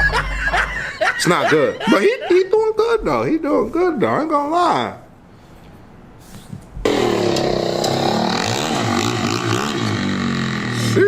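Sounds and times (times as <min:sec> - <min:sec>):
dirt bike engine revving: 0:06.9 - 0:11.0.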